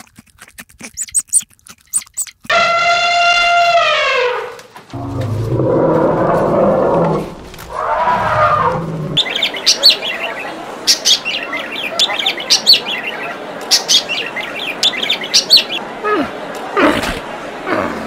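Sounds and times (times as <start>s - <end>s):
birds chirping: 0.9s - 2.4s, 8.0s - 15.9s.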